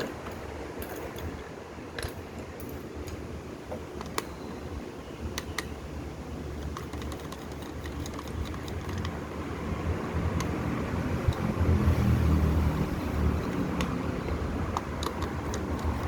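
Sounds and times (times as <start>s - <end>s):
sharp clicks and taps: 10.3s - 10.6s, 13.5s - 16.0s.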